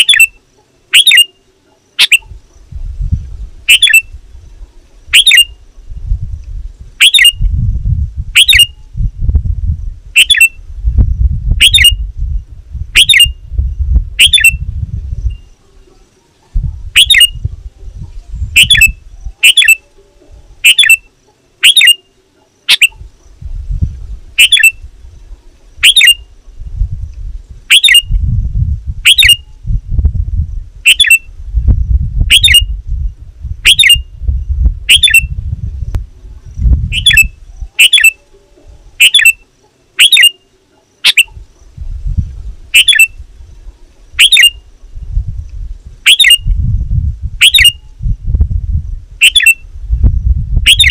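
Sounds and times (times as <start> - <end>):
bulbul sharp calls: 0.0 - 2.4, 3.7 - 5.6, 7.0 - 7.5, 8.3 - 8.9, 10.1 - 10.6, 11.6 - 12.0, 12.9 - 13.4, 14.2 - 14.6, 15.3 - 23.4, 24.4 - 24.9, 25.8 - 26.4, 27.7 - 28.2, 29.0 - 29.6, 30.8 - 31.3, 32.3 - 32.8, 33.6 - 34.2, 34.9 - 35.4, 36.9 - 41.8, 42.7 - 43.2, 44.1 - 44.7, 46.0 - 46.5, 47.4 - 47.9, 49.2 - 49.6, 50.6 - 50.9
low rumble: 26.4 - 37.8, 44.8 - 50.7.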